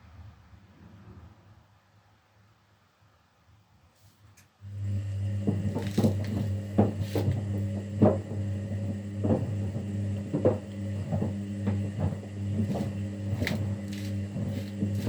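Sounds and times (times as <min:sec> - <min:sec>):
washing machine motor hum: 0:04.6 - 0:15.0
laundry thudding and swishing in drum: 0:05.4 - 0:15.0.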